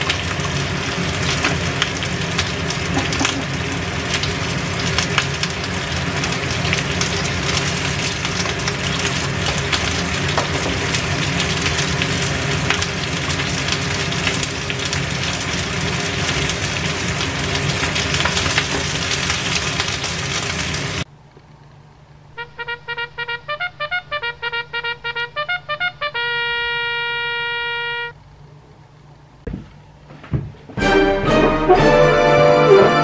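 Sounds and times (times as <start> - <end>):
food sizzling in oil: 0.0 - 21.1
light music: 30.8 - 33.0.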